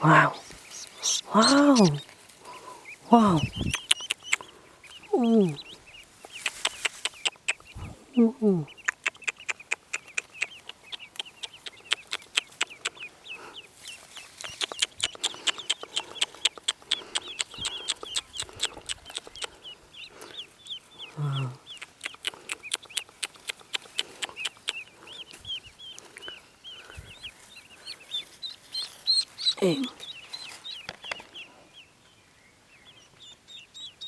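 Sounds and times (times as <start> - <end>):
ducklings peeping: 0.0 - 34.0
sharp clicks: 3.4 - 5.0, 6.2 - 7.7, 8.8 - 13.1, 14.4 - 19.6, 21.7 - 24.8.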